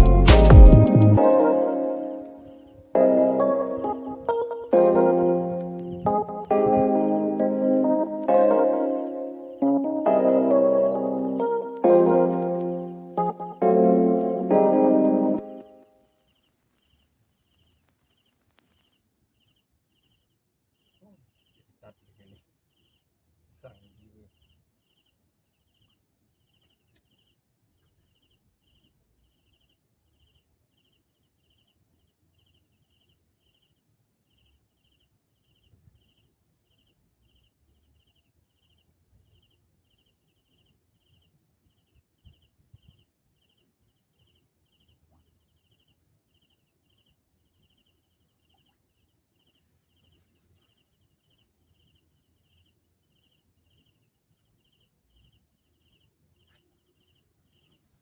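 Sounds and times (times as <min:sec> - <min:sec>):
insect chirping: 0:00.0 - 0:02.8, 0:15.4 - 0:58.0.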